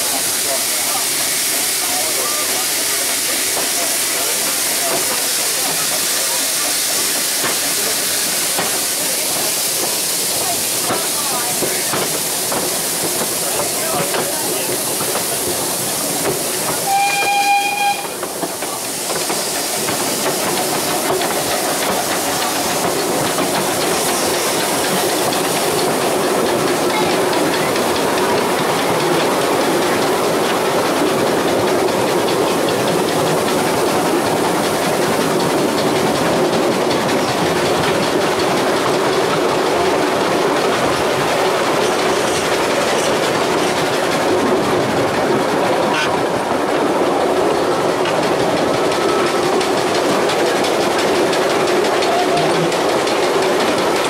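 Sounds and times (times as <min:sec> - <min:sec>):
train running on track: 0:00.0 - 0:54.0
train whistle: 0:16.8 - 0:18.2.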